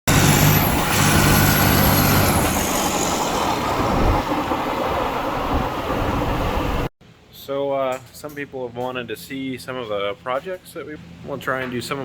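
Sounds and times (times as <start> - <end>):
diesel truck engine running: 0.1 - 4.8.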